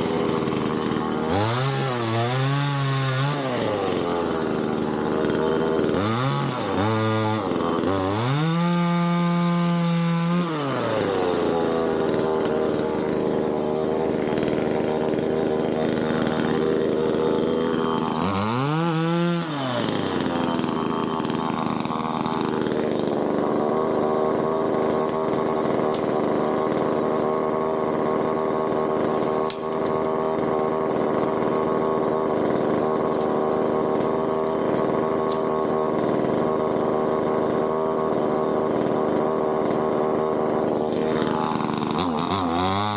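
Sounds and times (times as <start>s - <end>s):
chainsaw engine revving: 0.0s - 42.9s.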